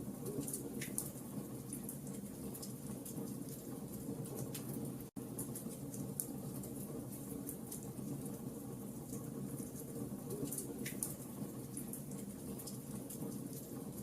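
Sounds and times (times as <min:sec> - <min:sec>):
low rumble of burning: 0:00.0 - 0:14.0.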